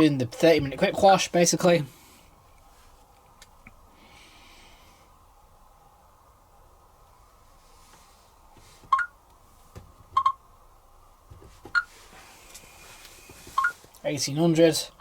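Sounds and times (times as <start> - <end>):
washing machine short beeps: 8.9 - 9.1, 10.2 - 10.4, 13.6 - 13.8.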